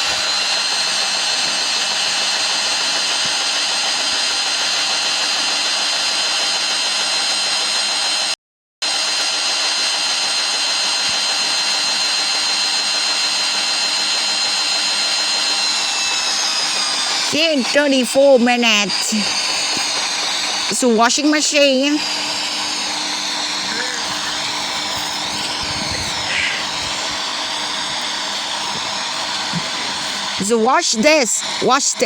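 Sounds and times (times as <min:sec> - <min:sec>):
high whine: 0:13.2 - 0:30.4.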